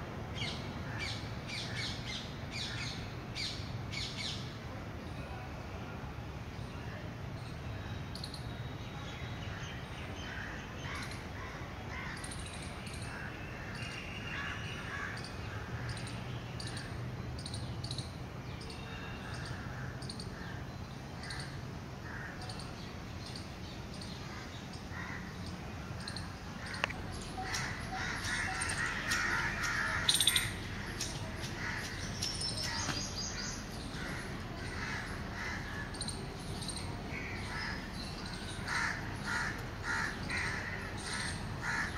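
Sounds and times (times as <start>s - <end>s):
wild birds calling: 9.5s - 41.9s.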